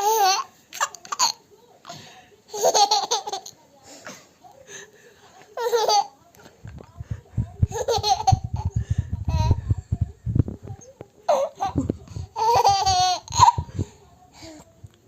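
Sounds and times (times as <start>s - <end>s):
baby laughing: 2.5s - 3.5s, 5.6s - 6.1s, 7.6s - 9.6s, 11.3s - 13.8s
low thumps: 6.6s - 10.9s.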